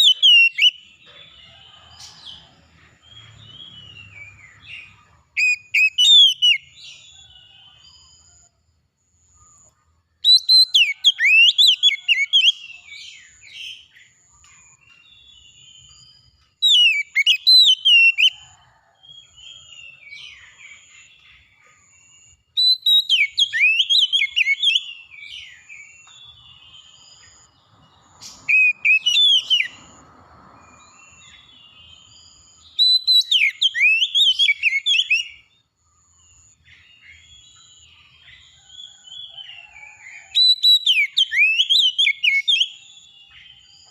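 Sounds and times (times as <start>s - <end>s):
songbird singing: 0.0s - 43.9s.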